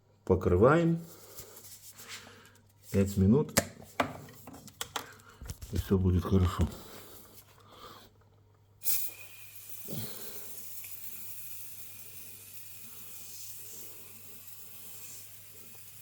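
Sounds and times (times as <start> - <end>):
aerosol foam spraying: 8.8 - 16.0.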